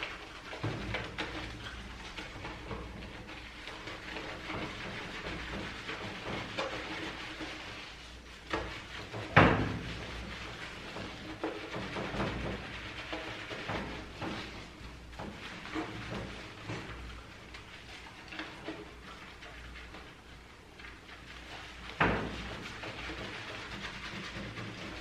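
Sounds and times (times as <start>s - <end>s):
water spraying from shower: 0.0s - 25.0s.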